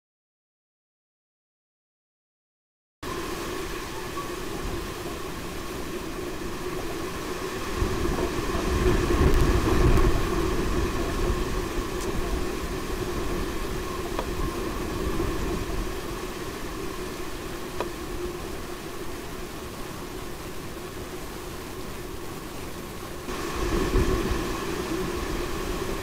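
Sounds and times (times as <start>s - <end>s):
faint steady hum: 3.0s - 26.0s
wind buffeting microphone: 3.1s - 26.0s.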